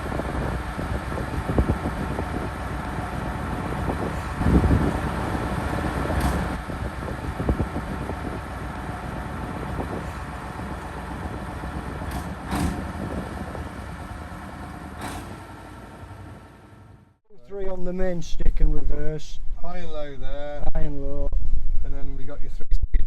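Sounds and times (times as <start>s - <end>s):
tractor engine running under load: 0.0s - 17.2s.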